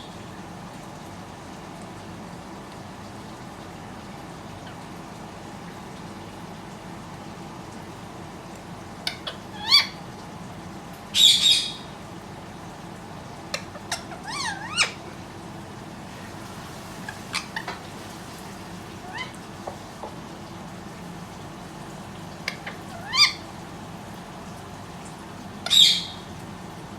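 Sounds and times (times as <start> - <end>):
parrot squawking and chirping: 9.0 - 10.0, 11.2 - 11.9, 13.5 - 15.2, 17.0 - 17.9, 19.0 - 19.5, 22.4 - 23.5, 25.6 - 26.2.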